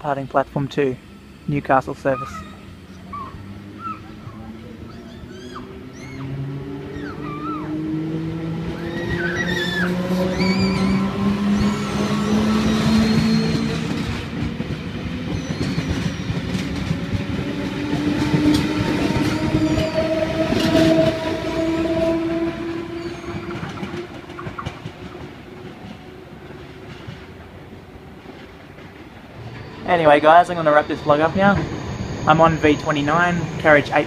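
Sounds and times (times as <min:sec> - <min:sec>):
electric train motor whine: 0:00.0 - 0:25.6
train wheels clicking on rails: 0:00.3 - 0:34.0.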